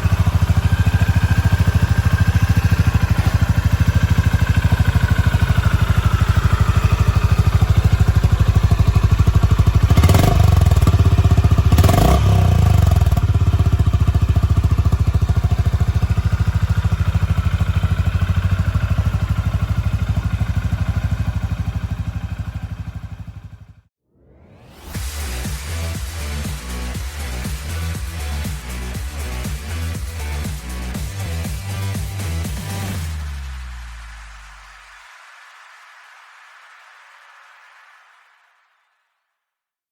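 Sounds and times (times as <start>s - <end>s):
motorcycle engine idling: 0.0s - 23.9s.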